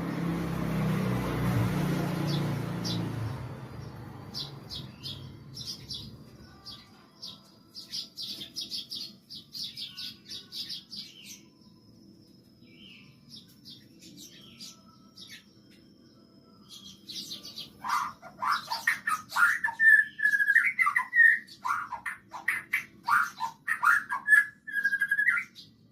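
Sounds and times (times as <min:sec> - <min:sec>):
sparrows chirping: 0:00.0 - 0:25.9
bird song of whistled phrases: 0:16.7 - 0:25.8.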